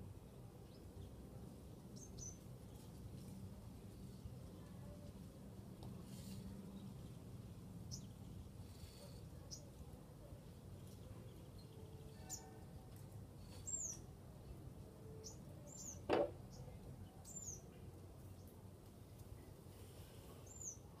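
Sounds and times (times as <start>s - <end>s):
small birds chirping: 1.9s - 5.2s, 5.8s - 21.0s.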